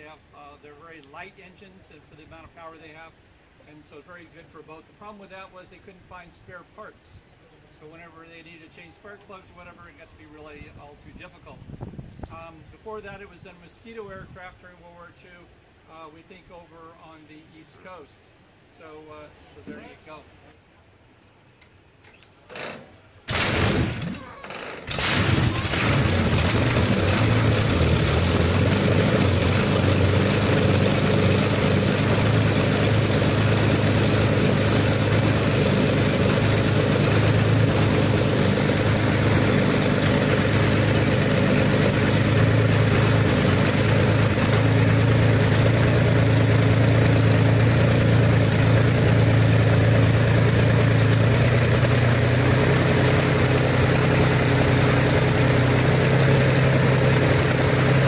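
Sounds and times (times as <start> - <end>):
aero engine idling: 24.8 - 58.0.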